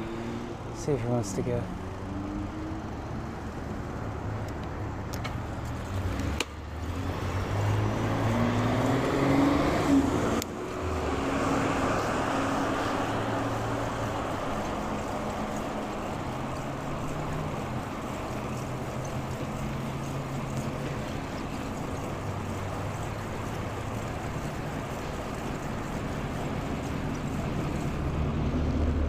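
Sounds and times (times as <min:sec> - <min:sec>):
road and wind noise: 0:00.0 - 0:29.0
car passing close by: 0:05.9 - 0:29.0.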